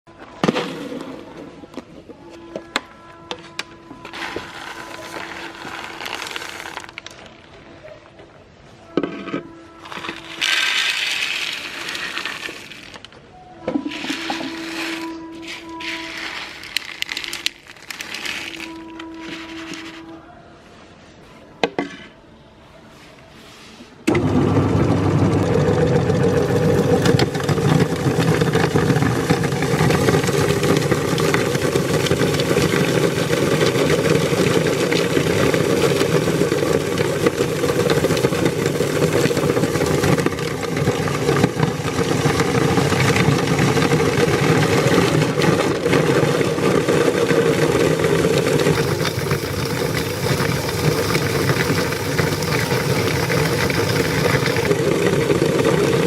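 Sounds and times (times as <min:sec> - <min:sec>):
crackle of beads clicking: 0:04.1 - 0:07.5, 0:14.0 - 0:20.0, 0:46.8 - 0:55.2
electric meat grinder running: 0:24.2 - 0:56.0.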